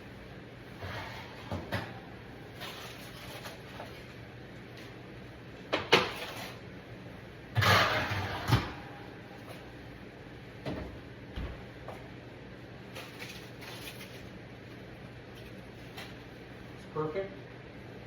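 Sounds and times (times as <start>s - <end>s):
kitchen knocks and clunks: 1.4s - 2.0s, 10.6s - 12.0s.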